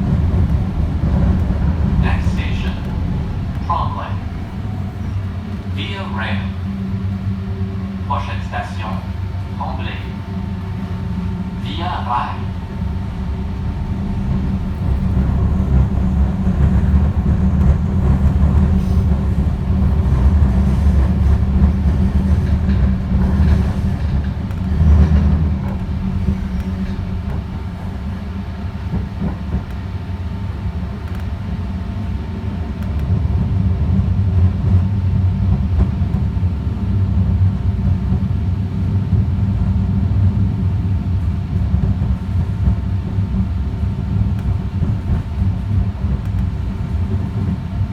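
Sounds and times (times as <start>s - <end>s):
train wheels rumbling: 0.0s - 47.9s.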